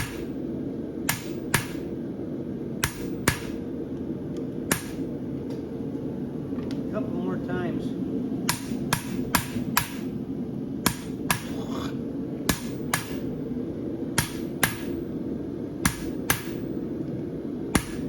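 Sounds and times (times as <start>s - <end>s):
hammer striking metal on anvil: 0.0s - 0.4s, 1.1s - 1.9s, 2.8s - 3.6s, 4.7s - 5.1s, 8.5s - 10.1s, 10.8s - 11.6s, 12.5s - 13.3s, 14.2s - 15.1s, 15.8s - 16.7s, 17.7s - 18.0s
forge humming: 0.0s - 18.0s.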